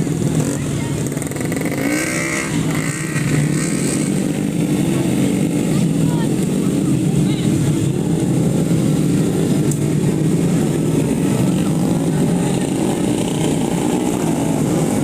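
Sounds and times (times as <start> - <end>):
scooter engines droning: 0.0 - 15.0.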